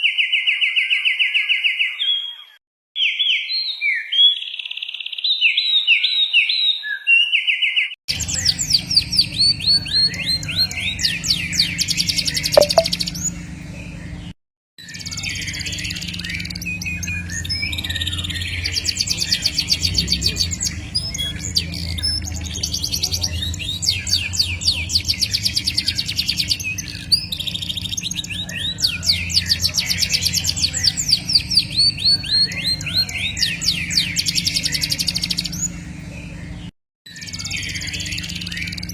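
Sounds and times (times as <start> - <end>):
songbird singing trills: 8.1 - 14.0, 14.9 - 38.9.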